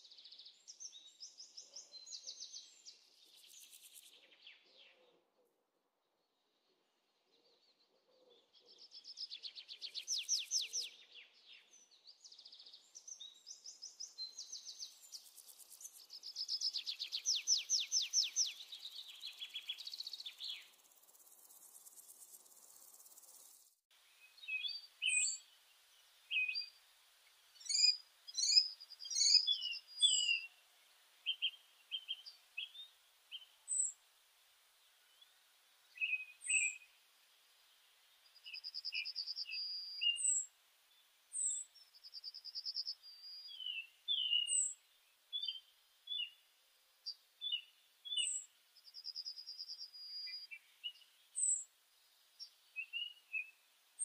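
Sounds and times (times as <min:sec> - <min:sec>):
birds singing trilled phrases: 0:08.7 - 0:25.6, 0:26.3 - 0:26.8, 0:27.6 - 0:30.6, 0:31.2 - 0:34.0, 0:35.9 - 0:37.0, 0:38.2 - 0:46.4, 0:47.0 - 0:51.6, 0:52.4 - 0:53.6.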